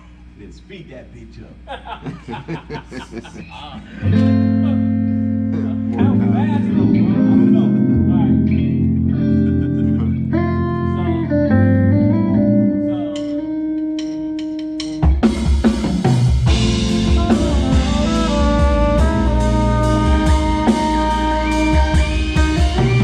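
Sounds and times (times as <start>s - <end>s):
live band playing: 4.0s - 23.0s
drum hits: 14.9s - 23.0s.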